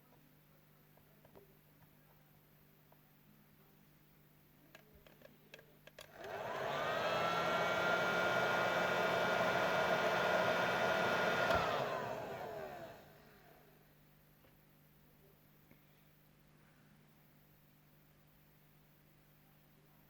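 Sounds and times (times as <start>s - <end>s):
electric blower motor whining: 6.1s - 13.5s.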